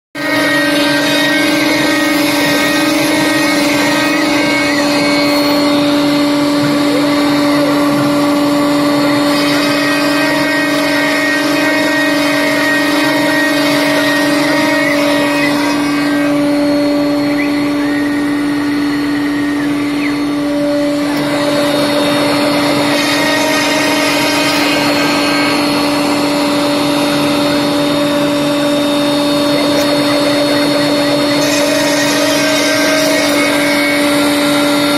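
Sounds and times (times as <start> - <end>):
machine whine: 0.2 - 34.9.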